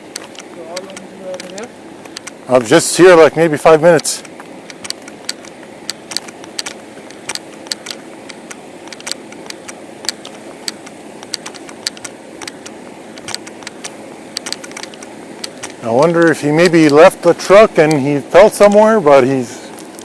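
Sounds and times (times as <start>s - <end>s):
vehicle engine hum: 0.0s - 20.0s
light clicks and rattles: 0.1s - 3.2s.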